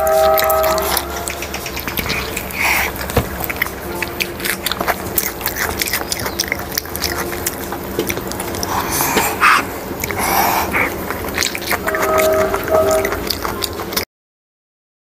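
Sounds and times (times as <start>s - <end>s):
person chewing chicken: 0.0s - 14.0s
wet mouth clicks and lip smacks: 0.2s - 12.0s.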